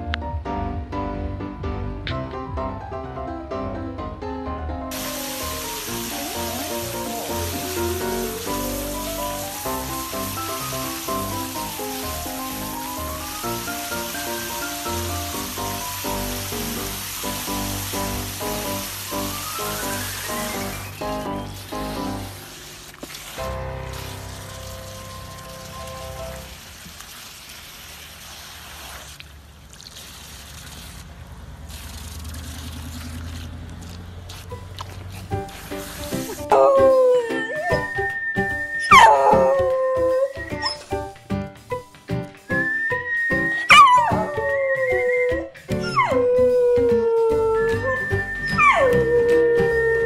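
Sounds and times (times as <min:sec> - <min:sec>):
background music: 0:00.0 - 0:22.6, 0:23.3 - 0:26.6, 0:34.5 - 0:50.0
water splashing: 0:04.9 - 0:41.0
water hissing from hose nozzle: 0:04.9 - 0:41.1
puppy howling: 0:36.4 - 0:40.8, 0:42.7 - 0:50.0.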